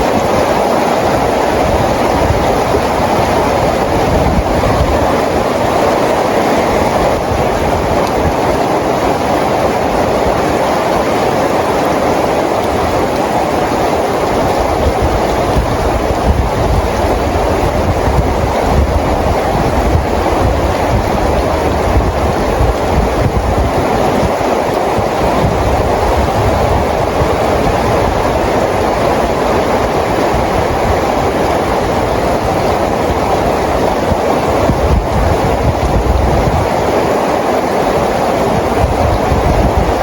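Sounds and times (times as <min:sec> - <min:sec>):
steady rainfall: 0:00.0 - 0:40.0.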